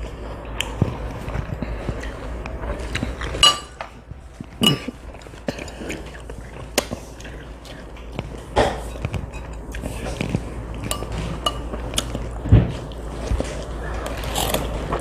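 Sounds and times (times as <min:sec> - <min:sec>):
utensils clinking against a bowl: 0:03.1 - 0:03.9, 0:04.6 - 0:07.4, 0:08.0 - 0:12.4.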